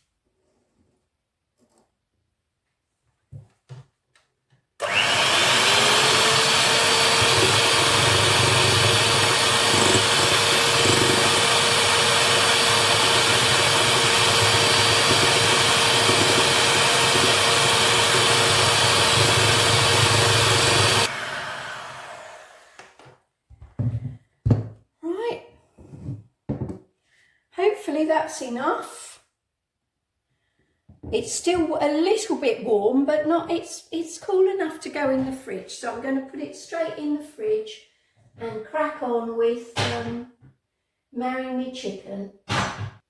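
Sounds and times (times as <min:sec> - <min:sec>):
electric mixer motor whine: 0:04.8 - 0:22.9.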